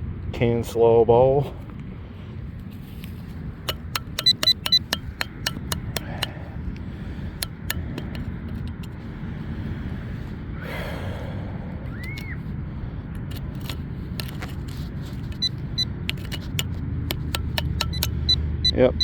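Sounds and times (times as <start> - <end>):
metallic clinks and taps of can: 3.7 - 6.4, 7.4 - 9.0, 13.2 - 18.4
wind rumble on microphone: 6.0 - 17.1.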